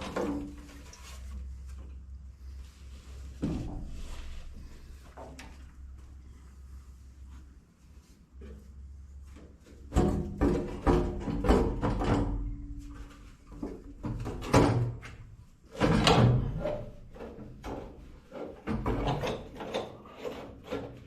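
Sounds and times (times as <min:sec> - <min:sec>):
metal knocks and bangs: 0:09.8 - 0:13.0, 0:13.6 - 0:21.0.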